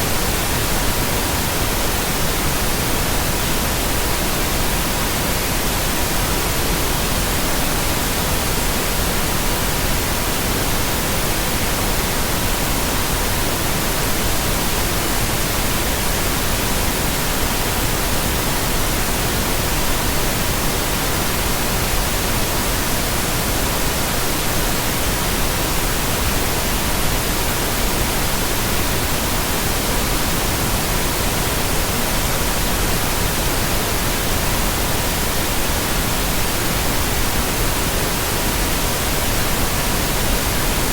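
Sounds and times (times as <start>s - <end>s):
pink noise: 0.0s - 40.9s.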